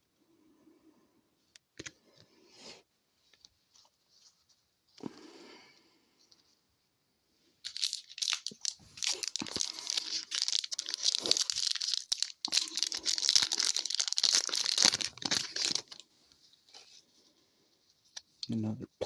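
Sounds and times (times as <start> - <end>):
wrapper tearing and crinkling: 7.6 - 16.0.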